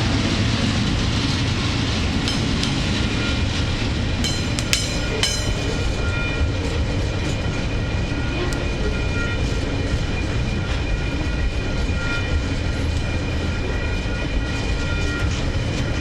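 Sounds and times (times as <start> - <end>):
sharp metallic clanks: 2.3 - 3.3, 4.2 - 6.0.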